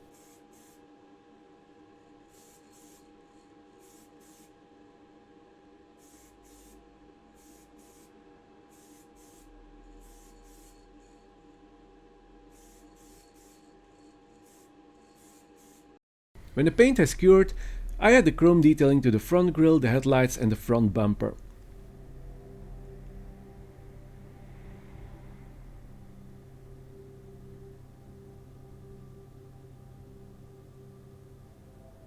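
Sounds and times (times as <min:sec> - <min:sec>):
spray varnish hissing: 0:02.3 - 0:03.1, 0:03.8 - 0:04.5, 0:06.0 - 0:06.8, 0:07.4 - 0:08.1, 0:08.7 - 0:10.8
faint steady hum: 0:16.4 - 0:32.0.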